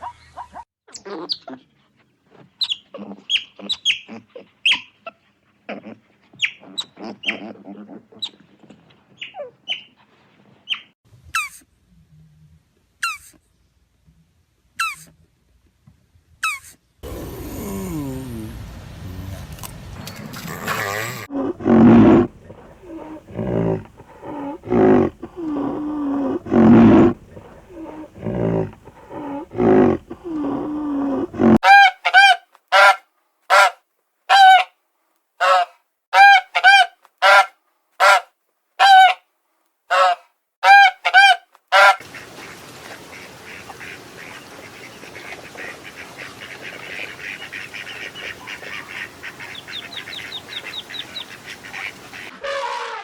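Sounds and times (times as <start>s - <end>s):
farm fowl calling: 20.5s - 34.7s, 35.4s - 38.2s, 38.8s - 39.2s, 39.9s - 53.0s.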